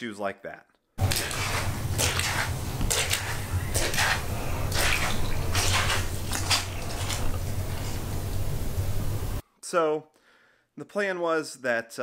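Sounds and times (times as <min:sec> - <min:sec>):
steady low hum: 0:01.0 - 0:09.4
water splashing and trickling: 0:01.0 - 0:09.4.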